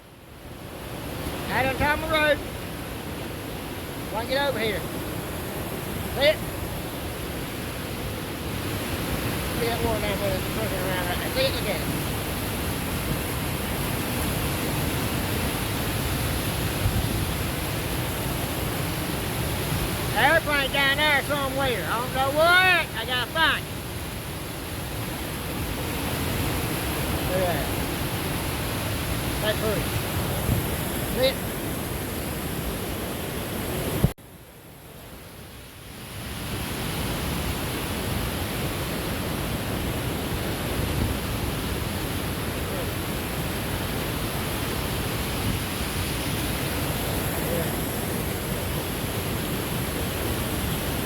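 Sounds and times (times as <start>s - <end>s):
waterfall roaring: 0.0s - 51.0s.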